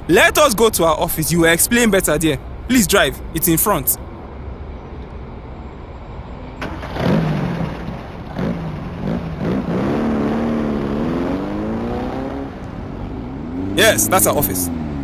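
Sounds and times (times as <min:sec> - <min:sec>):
car engine revving and accelerating: 0:06.8 - 0:15.0.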